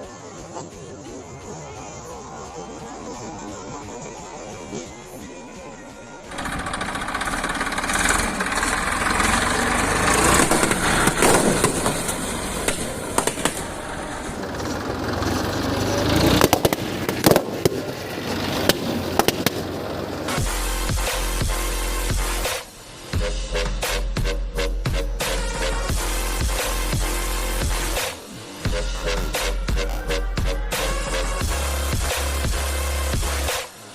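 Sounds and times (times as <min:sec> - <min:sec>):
tractor engine running: 0:06.2 - 0:24.0
balloons bursting: 0:10.0 - 0:14.6, 0:16.2 - 0:19.8.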